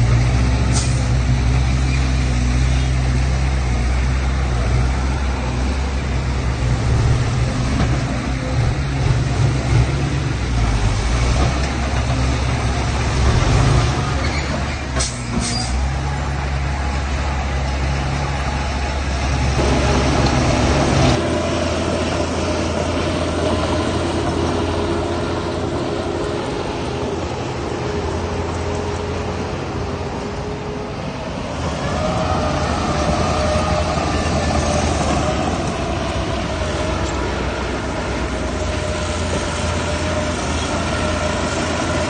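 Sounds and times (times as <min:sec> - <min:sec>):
heavy diesel engine rumbling: 0:00.0 - 0:42.0.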